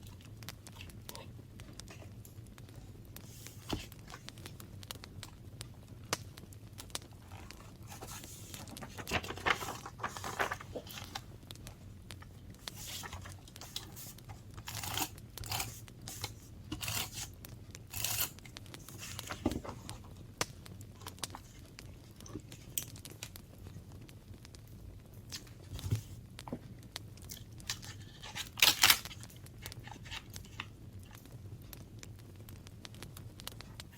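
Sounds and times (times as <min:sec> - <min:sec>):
paper tearing and rustling: 0:07.4 - 0:11.3, 0:12.6 - 0:17.3, 0:17.9 - 0:19.9, 0:27.7 - 0:30.7.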